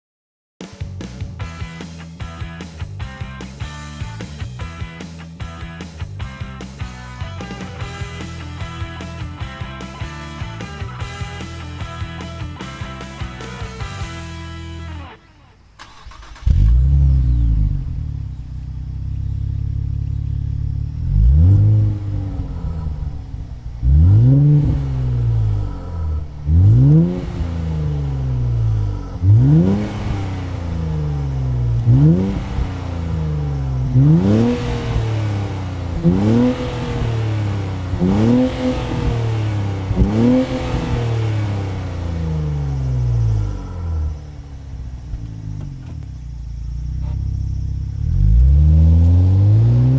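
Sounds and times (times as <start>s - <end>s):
car engine idling and revving: 1.1s - 49.9s.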